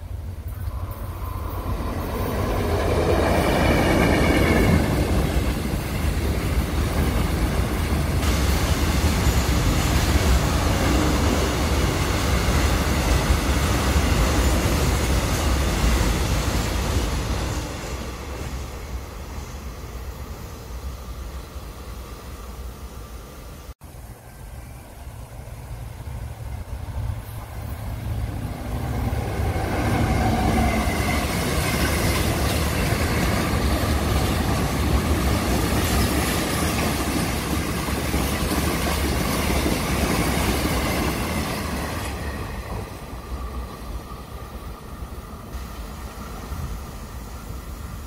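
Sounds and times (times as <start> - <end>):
freight train wheels on rails: 0.0 - 48.0.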